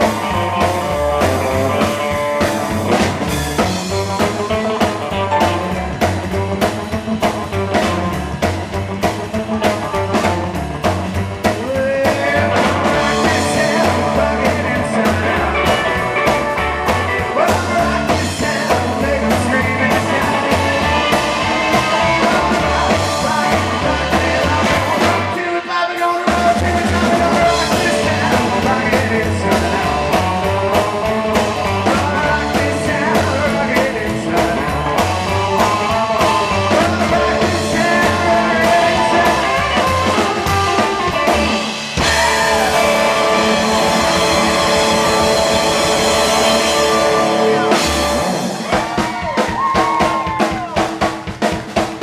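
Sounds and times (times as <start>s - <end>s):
electric guitar: 0.0s - 50.8s
drum kit: 0.0s - 52.0s
person singing: 11.4s - 51.0s.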